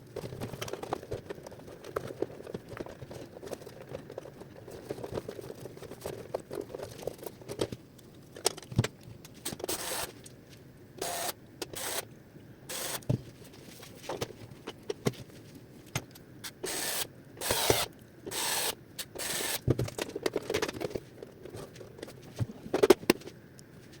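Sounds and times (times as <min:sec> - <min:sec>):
clicks and knocks on plastic parts: 0:00.2 - 0:09.7, 0:19.0 - 0:23.4.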